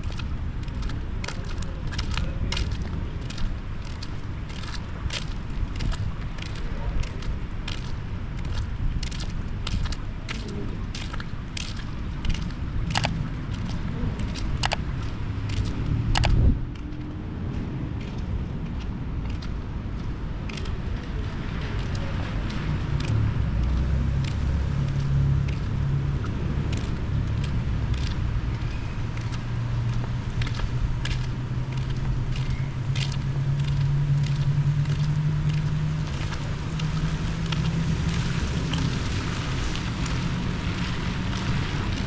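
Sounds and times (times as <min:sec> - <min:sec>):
sharp ticks and clicks: 0:13.0 - 0:13.2, 0:16.2 - 0:16.4.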